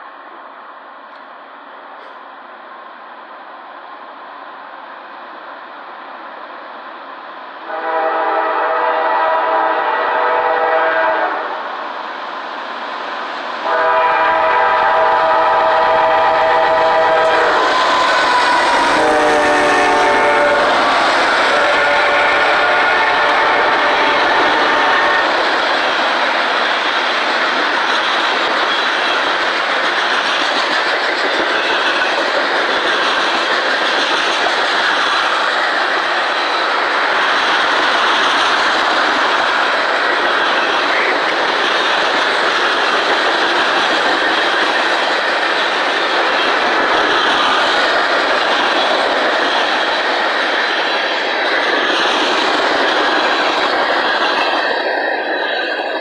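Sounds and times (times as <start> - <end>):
train rumbling: 0.0 - 56.0
train air horn blasts: 7.7 - 11.6, 13.6 - 25.5.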